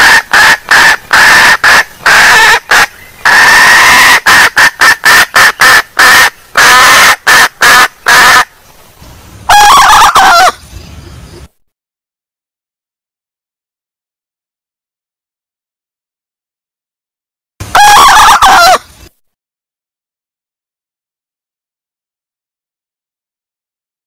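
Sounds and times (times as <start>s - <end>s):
junglefowl clucking: 0.0s - 8.5s, 9.5s - 10.6s, 17.7s - 18.9s.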